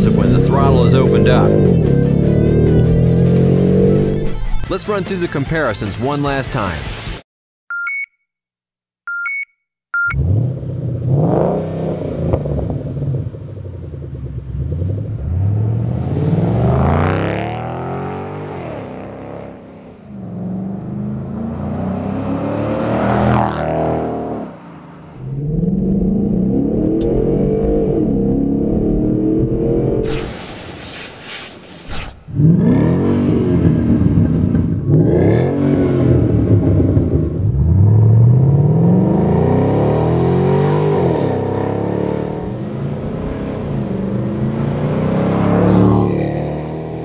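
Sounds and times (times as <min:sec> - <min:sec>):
car engine revving: 0:00.0 - 0:04.5, 0:10.2 - 0:30.6, 0:32.2 - 0:47.0
short high beeps: 0:07.7 - 0:08.3, 0:09.1 - 0:10.2.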